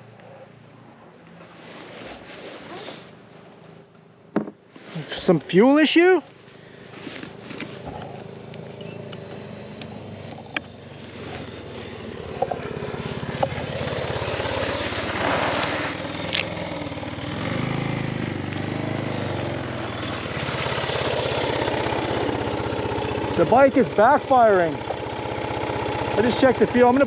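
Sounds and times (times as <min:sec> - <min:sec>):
motorcycle engine running: 0:06.7 - 0:27.0.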